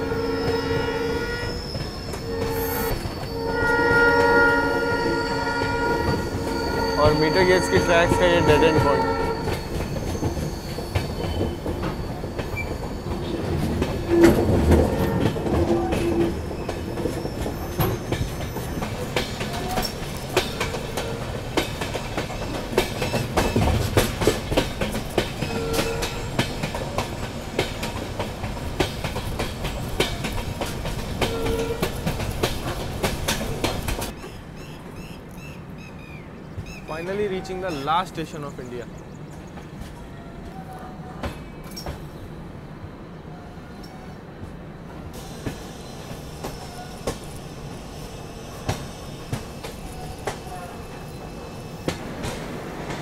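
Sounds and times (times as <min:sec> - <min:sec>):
train coaches rumbling: 0:00.0 - 0:53.0
wheels clacking over rail joints: 0:01.5 - 0:35.0.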